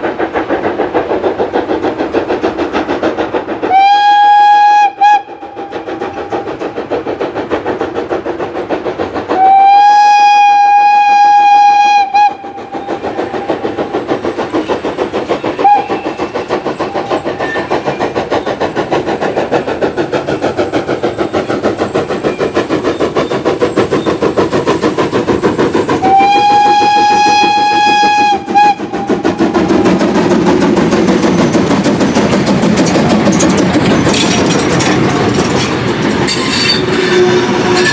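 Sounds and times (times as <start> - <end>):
steam locomotive chuffing: 0.0 - 37.9
steam whistle blasts: 3.7 - 5.7, 9.4 - 12.5, 26.0 - 29.2, 36.5 - 37.9.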